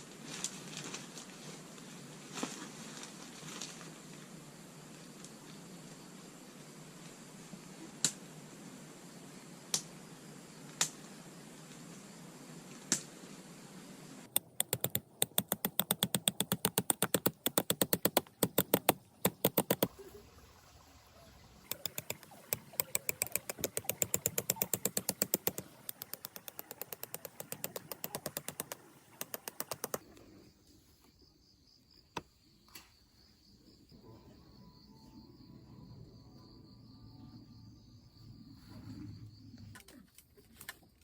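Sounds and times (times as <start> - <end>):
rapid sharp clicks: 14.3 - 19.9, 21.7 - 30.0.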